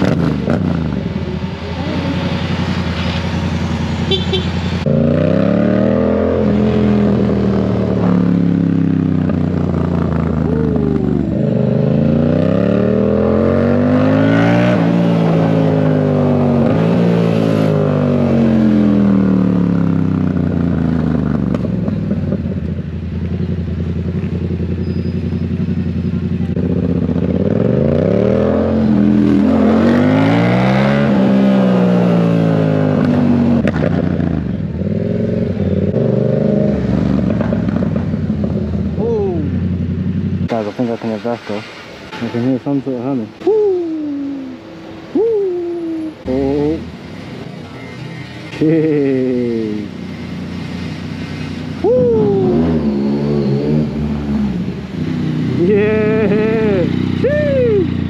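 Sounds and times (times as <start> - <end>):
motorcycle engine revving: 0.0 - 41.3, 48.4 - 58.0.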